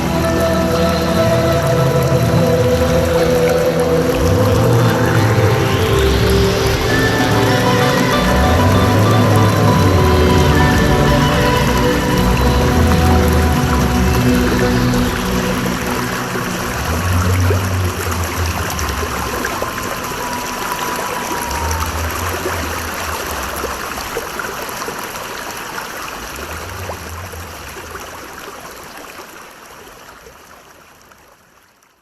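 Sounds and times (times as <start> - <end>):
deep low notes: 0.0 - 20.7
stream water running: 0.0 - 32.0.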